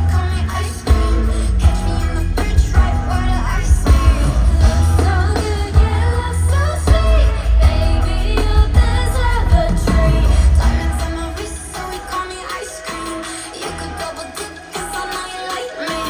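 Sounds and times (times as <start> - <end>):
heavy bass beat: 0.0 - 12.5
woman singing: 0.0 - 16.0.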